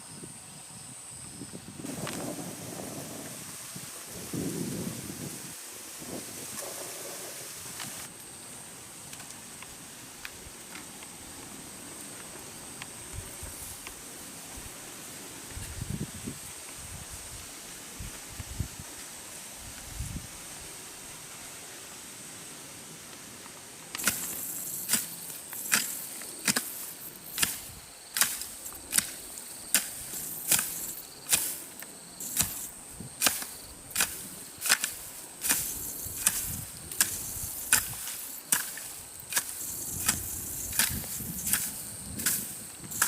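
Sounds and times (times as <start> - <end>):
hand tool chopping grassy ground: 24.0 - 43.0.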